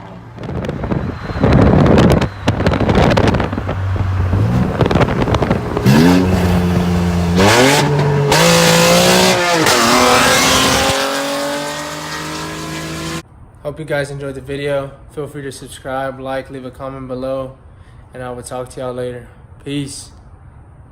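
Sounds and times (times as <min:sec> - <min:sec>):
car engine revving: 0:00.0 - 0:13.2.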